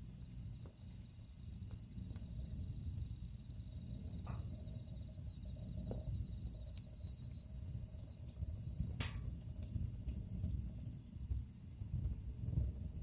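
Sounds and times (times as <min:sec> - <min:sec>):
logs crackling and popping: 0:00.0 - 0:13.0
wood fire rumbling: 0:00.0 - 0:13.0
faint high whistle: 0:03.6 - 0:09.2.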